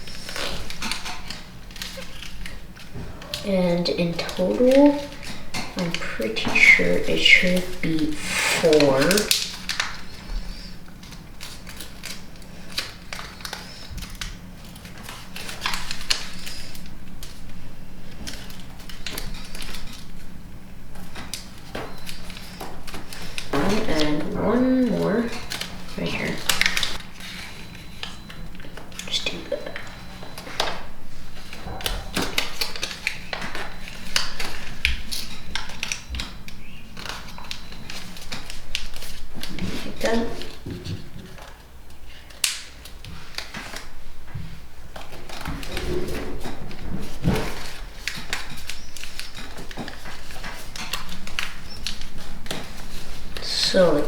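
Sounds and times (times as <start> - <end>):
paper being folded and creased: 0.0 - 20.2, 22.0 - 44.0, 45.0 - 54.0
sharp clicks of folds: 47.5 - 53.5.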